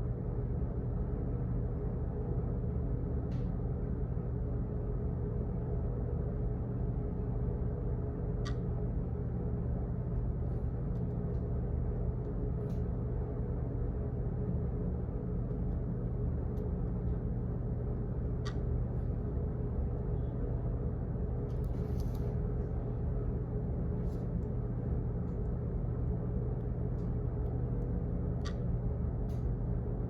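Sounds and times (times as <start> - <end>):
low office hum: 0.0 - 30.0
faint clicks: 8.4 - 8.6.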